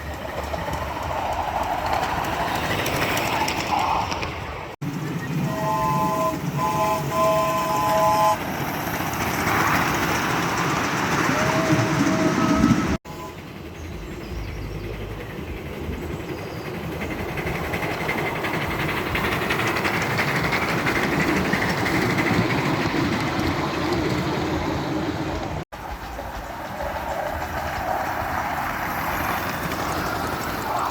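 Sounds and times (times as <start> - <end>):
model locomotive running on track: 0.0 - 30.9
steam locomotive whistle: 5.4 - 8.4, 11.1 - 13.5.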